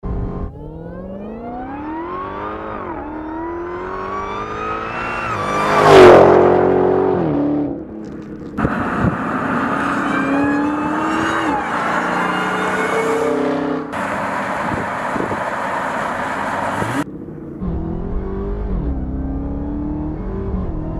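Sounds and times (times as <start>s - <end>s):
car engine revving: 0.0s - 20.9s
car engine accelerating hard: 0.1s - 20.9s.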